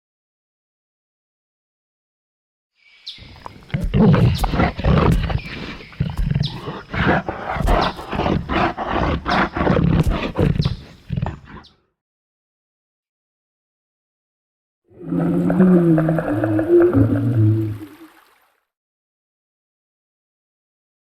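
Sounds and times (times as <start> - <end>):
deep dinosaur roars and growls: 3.5 - 11.6, 14.9 - 18.0.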